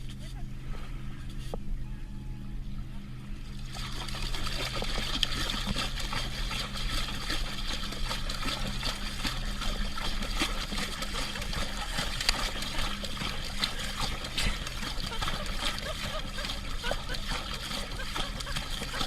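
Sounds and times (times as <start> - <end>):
steady low hum: 0.0 - 19.0
water trickling and splashing: 3.5 - 19.0.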